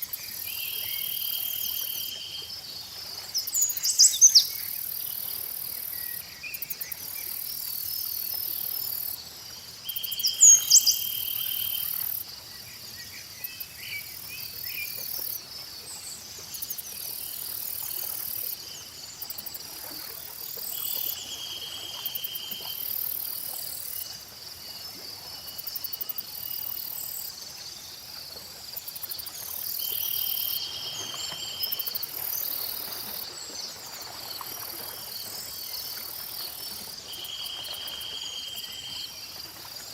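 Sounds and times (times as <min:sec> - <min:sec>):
crickets chirping: 0:00.0 - 0:39.9
low insect trill: 0:03.5 - 0:12.4, 0:28.8 - 0:39.9.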